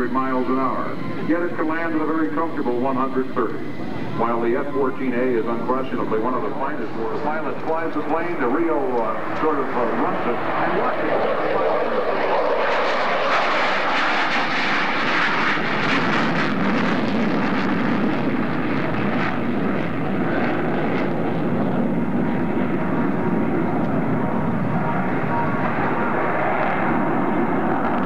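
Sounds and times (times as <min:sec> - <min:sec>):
jet engines roaring: 0:00.0 - 0:28.0.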